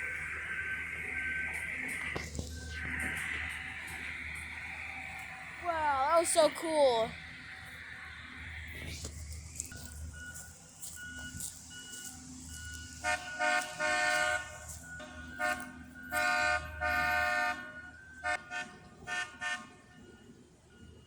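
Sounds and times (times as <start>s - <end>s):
faint beeping tone: 0.0s - 18.2s
horn blasts: 12.7s - 20.3s.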